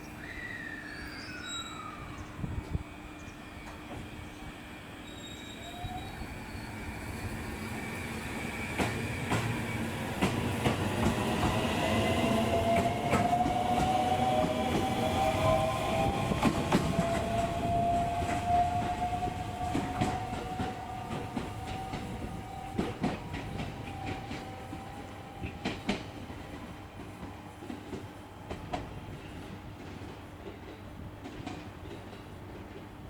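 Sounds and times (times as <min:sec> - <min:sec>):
train squealing: 0:00.0 - 0:26.8
train wheels clicking over rail joints: 0:08.6 - 0:33.0.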